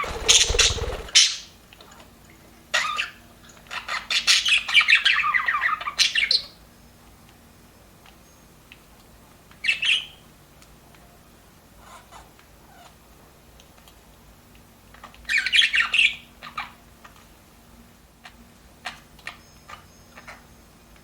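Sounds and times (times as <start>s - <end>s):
budgerigars squawking: 0.0s - 1.4s.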